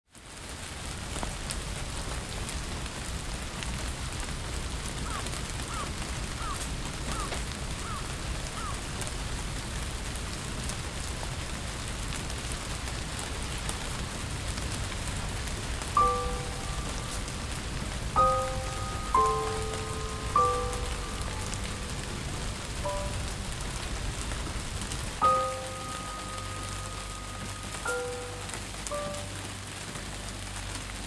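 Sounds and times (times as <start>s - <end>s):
steady rain falling: 0.1s - 31.0s
bell-like chime note: 25.2s - 29.3s.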